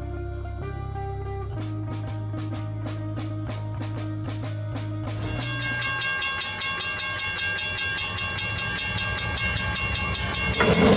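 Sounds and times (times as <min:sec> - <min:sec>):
snowplow train rapid beat: 0:05.1 - 0:10.9
steady high tones: 0:05.2 - 0:10.9.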